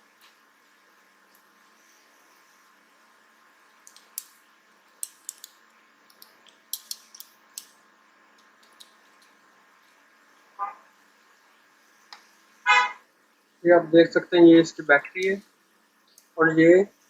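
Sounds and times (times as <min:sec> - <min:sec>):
faint steady hum: 0:00.0 - 0:17.0
small tools clicking: 0:03.8 - 0:04.4, 0:05.0 - 0:07.8.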